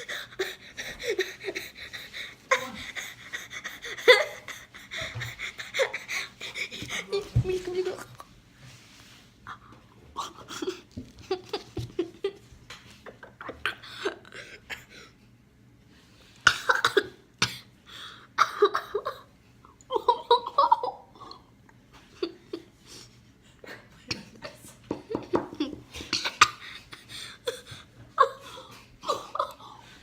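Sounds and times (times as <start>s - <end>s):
heavy breathing: 0.0s - 7.3s
person coughing: 16.5s - 17.7s.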